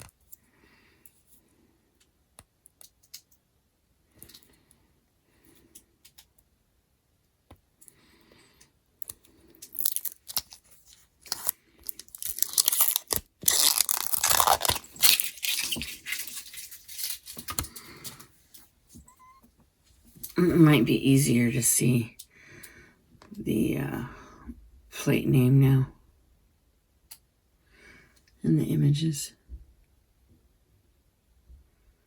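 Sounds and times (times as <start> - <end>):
plastic film clicks and scratches: 9.0 - 18.2
plastic film tearing: 9.6 - 17.8.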